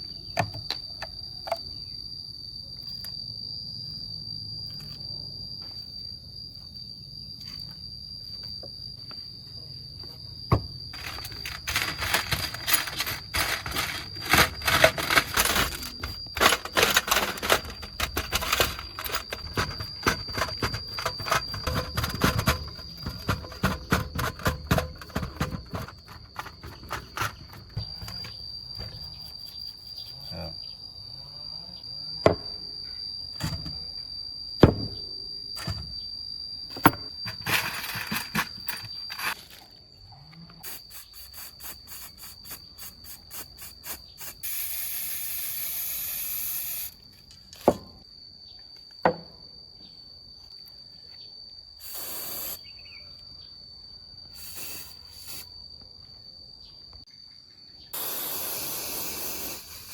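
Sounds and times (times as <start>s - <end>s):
high-pitched whine: 2.7s - 39.8s
short hissing bursts: 40.6s - 47.0s, 51.8s - 52.7s, 54.3s - 55.5s, 58.0s - 59.9s.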